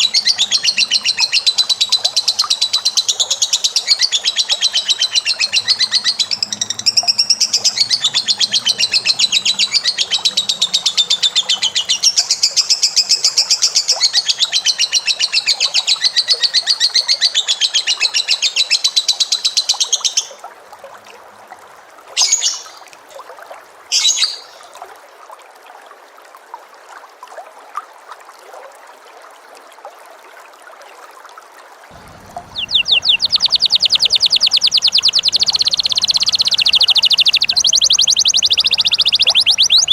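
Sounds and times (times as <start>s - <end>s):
bird trilling: 0.0s - 12.4s, 32.0s - 39.9s
short bird calls: 32.0s - 39.9s.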